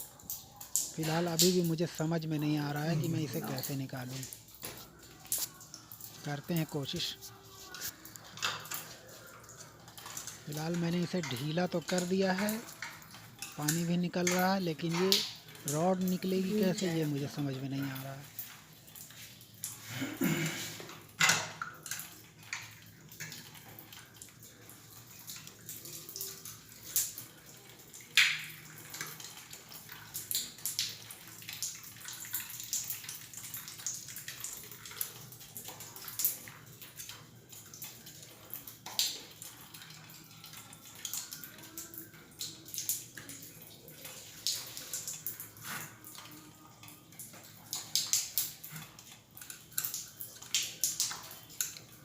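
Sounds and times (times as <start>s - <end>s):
water trickling and splashing: 0.0s - 52.0s.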